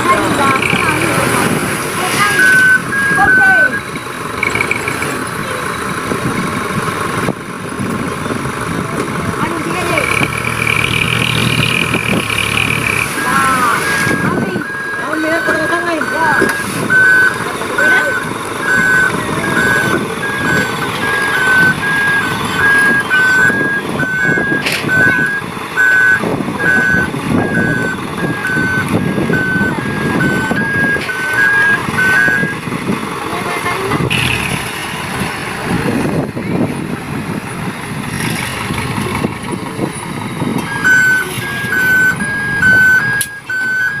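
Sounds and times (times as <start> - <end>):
diesel engine running: 0.0 - 44.0
two-note reversing alarm beeping: 2.1 - 5.0, 12.1 - 32.6, 40.7 - 44.0.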